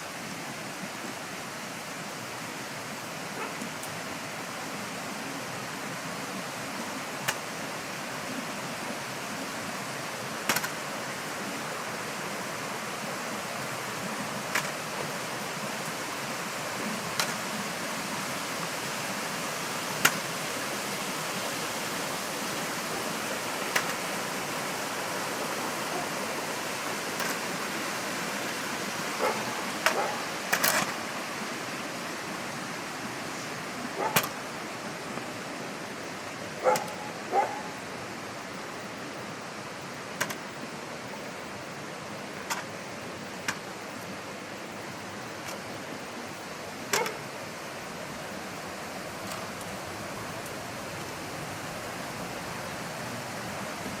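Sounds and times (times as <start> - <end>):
steady rushing hiss: 0.0 - 54.0
dog barking: 3.4 - 3.6, 25.9 - 26.1, 29.2 - 30.3, 34.0 - 34.3, 36.6 - 37.8, 46.9 - 47.2.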